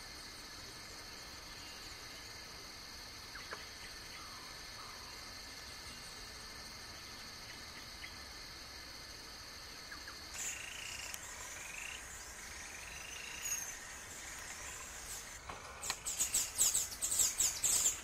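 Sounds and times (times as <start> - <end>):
songbirds chirping: 9.8 - 18.0.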